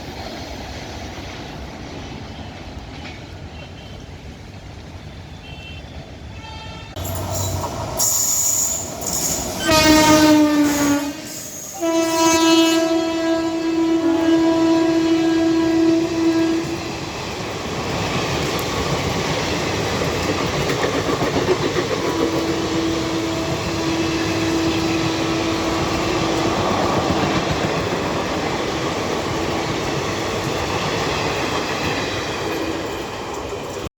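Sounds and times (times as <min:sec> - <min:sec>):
train horn: 0:05.4 - 0:17.0, 0:21.9 - 0:27.4
train wheels clattering over rail joints: 0:16.7 - 0:33.9.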